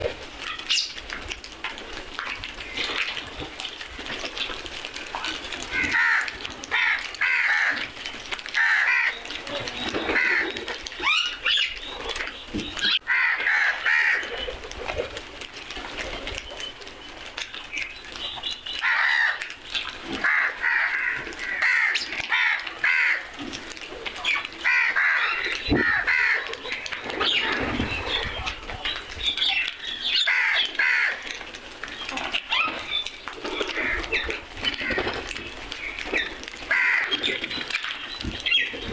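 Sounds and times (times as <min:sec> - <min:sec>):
crows cawing: 0:05.7 - 0:09.4, 0:10.1 - 0:11.4, 0:12.9 - 0:14.3, 0:18.8 - 0:19.5, 0:20.2 - 0:23.4, 0:24.6 - 0:26.6, 0:30.2 - 0:31.3, 0:36.7 - 0:37.3.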